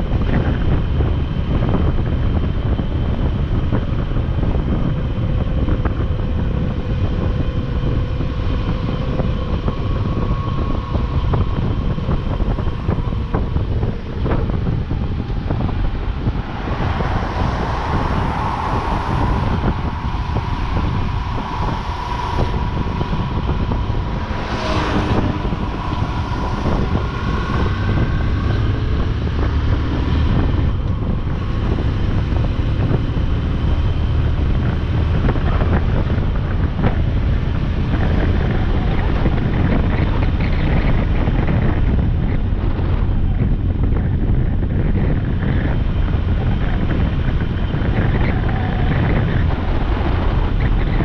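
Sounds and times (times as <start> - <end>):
road noise: 0.0 - 51.0
wind rushing over microphone: 0.0 - 51.0
motorcycle engine: 2.6 - 42.2.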